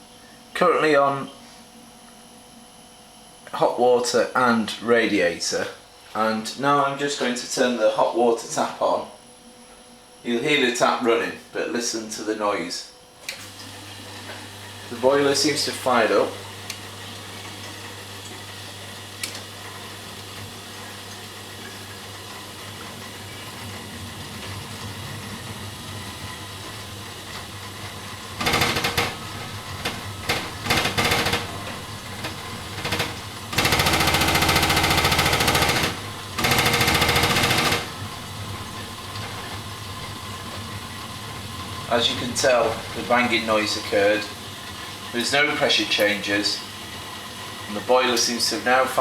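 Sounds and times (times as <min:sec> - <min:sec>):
hum of running water: 0:00.0 - 0:49.0
boiler banging: 0:14.0 - 0:49.0
fast rattling banging: 0:24.7 - 0:43.4
loud knocks: 0:26.4 - 0:39.6.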